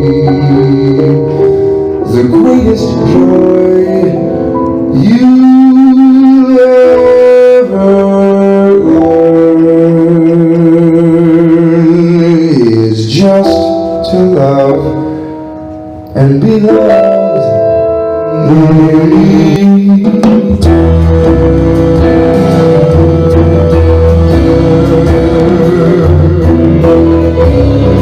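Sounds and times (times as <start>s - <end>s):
jazz band playing: 0.0s - 9.6s, 11.7s - 28.0s
saxophone lead line: 18.4s - 28.0s.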